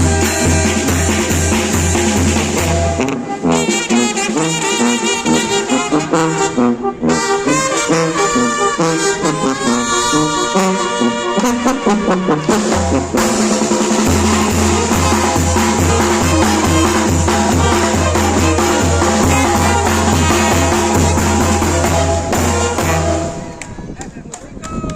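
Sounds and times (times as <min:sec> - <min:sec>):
bass drum and percussion: 0:00.0 - 0:06.2, 0:12.4 - 0:23.8
brass band playing: 0:00.0 - 0:23.7.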